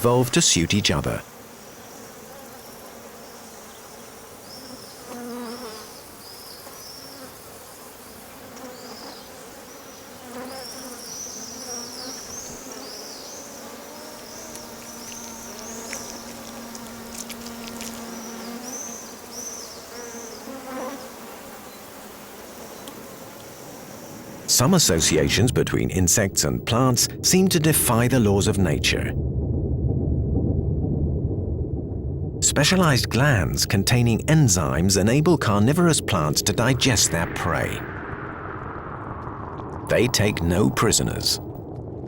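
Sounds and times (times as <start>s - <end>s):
flying insects buzzing: 1.1s - 24.5s.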